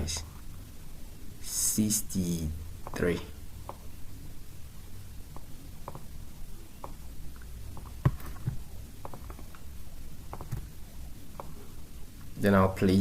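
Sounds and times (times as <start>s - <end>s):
low room hum: 0.0s - 13.0s
computer mouse clicks: 3.6s - 3.9s, 5.3s - 6.1s, 6.8s - 9.7s, 10.3s - 10.7s, 11.3s - 11.6s.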